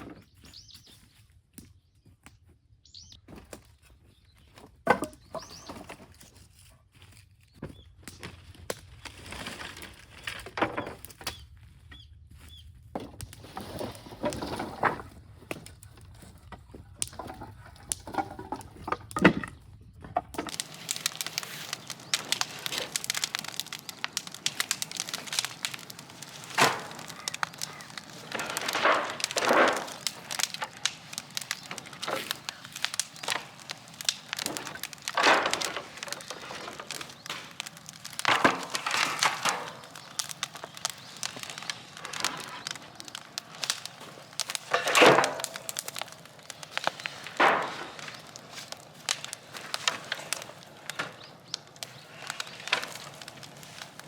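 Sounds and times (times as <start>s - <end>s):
wood fire crackling: 13.2s - 54.0s.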